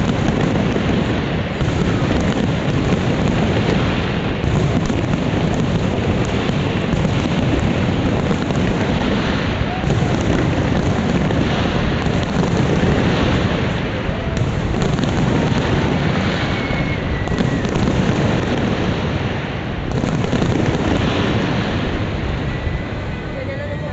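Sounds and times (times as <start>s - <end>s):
sharp firework bangs: 0.0s - 23.2s
fireworks rumble and crackle: 0.0s - 23.9s.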